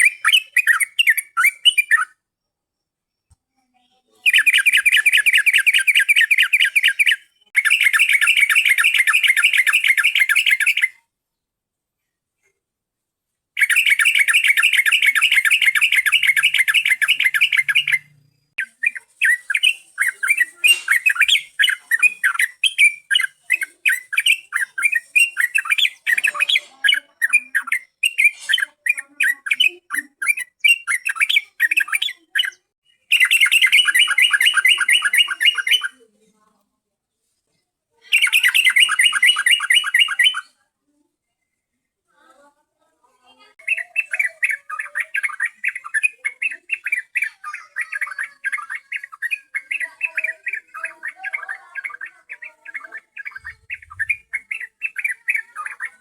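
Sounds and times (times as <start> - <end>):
bird chattering calls: 13.6 - 32.2, 43.6 - 56.0.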